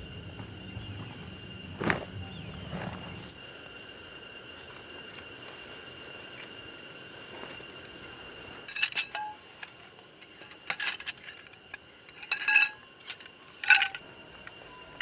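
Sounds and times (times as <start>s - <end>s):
metallic ringing: 8.6s - 15.0s
metal cookware clinking: 8.7s - 9.6s, 12.1s - 14.0s.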